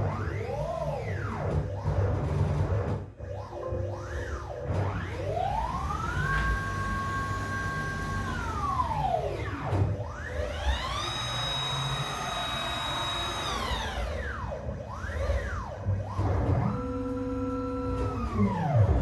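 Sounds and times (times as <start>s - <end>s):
stepper motors whining: 5.3s - 19.0s.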